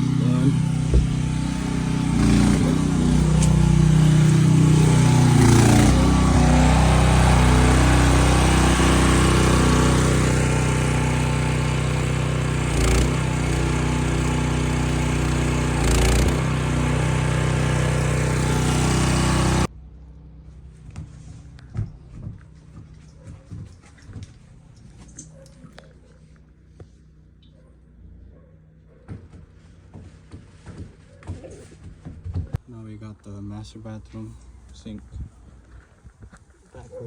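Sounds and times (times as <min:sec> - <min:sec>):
small engine running: 0:00.0 - 0:19.7
short knocks: 0:00.5 - 0:04.4.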